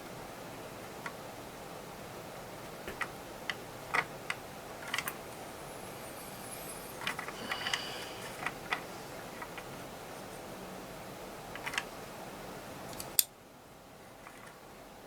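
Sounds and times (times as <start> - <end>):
thin metallic ring: 5.0 - 9.1.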